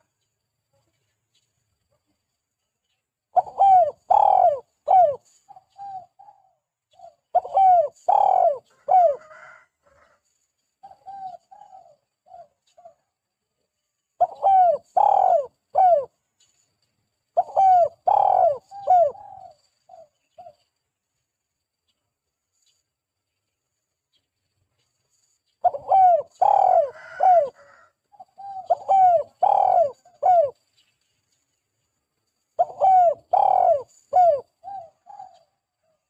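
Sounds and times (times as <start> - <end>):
dove cooing: 3.3 - 10.1, 10.8 - 13.1, 14.2 - 16.2, 17.4 - 20.6, 25.6 - 30.6, 32.6 - 36.0.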